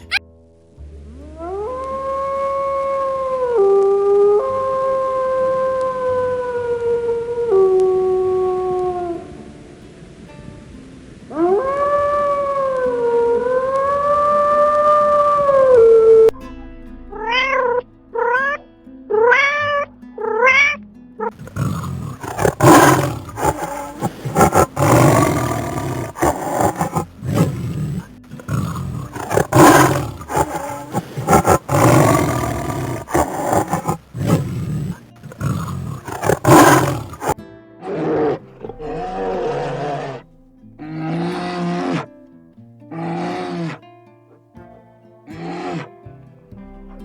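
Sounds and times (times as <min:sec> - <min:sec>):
big cat growling and roaring: 0:21.4 - 0:40.2, 0:40.8 - 0:42.1, 0:42.9 - 0:43.8, 0:45.4 - 0:46.0.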